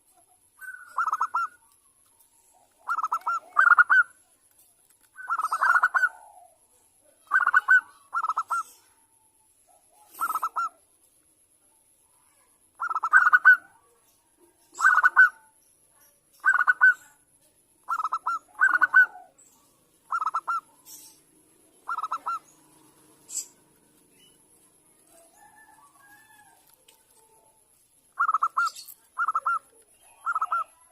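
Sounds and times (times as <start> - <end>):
dove cooing: 0.6 - 1.8, 2.4 - 4.2, 5.2 - 9.0, 9.9 - 10.8, 12.8 - 13.9, 14.7 - 15.5, 17.9 - 19.4, 20.0 - 27.6, 28.2 - 30.9.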